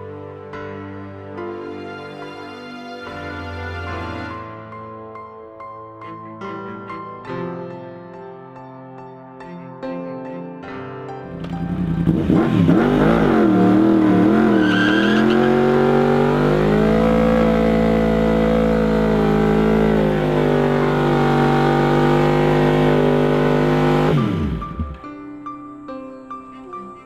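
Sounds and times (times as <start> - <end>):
motorcycle engine revving: 11.3 - 25.0
tyre squeal: 13.6 - 16.0.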